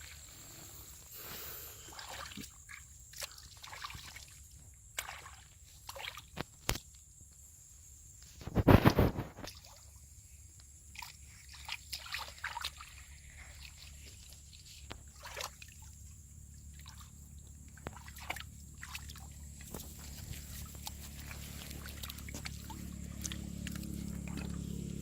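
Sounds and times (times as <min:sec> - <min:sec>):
water sloshing and trickling: 0:00.0 - 0:01.1, 0:01.7 - 0:07.0, 0:09.2 - 0:25.0
low hum: 0:15.8 - 0:25.0.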